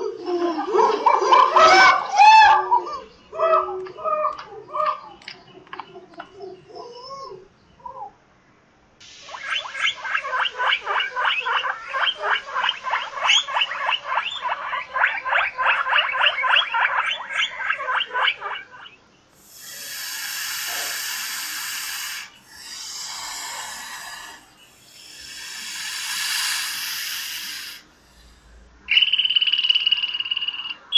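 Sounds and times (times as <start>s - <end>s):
guinea pig squeaking: 9.3s - 18.9s
snake hissing: 19.4s - 28.6s.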